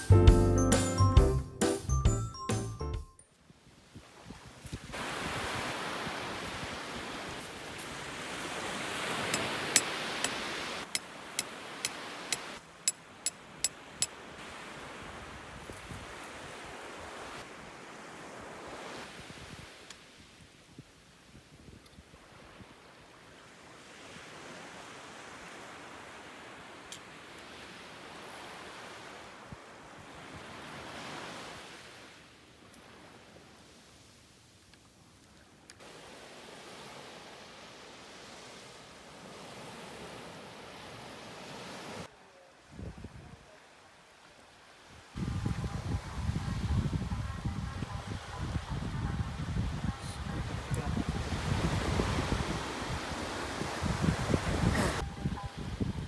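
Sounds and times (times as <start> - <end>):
sea waves washing on shore: 3.7 - 20.7, 22.1 - 34.6, 35.2 - 42.1, 43.6 - 56.0
wind on microphone: 42.7 - 43.4, 45.1 - 56.0.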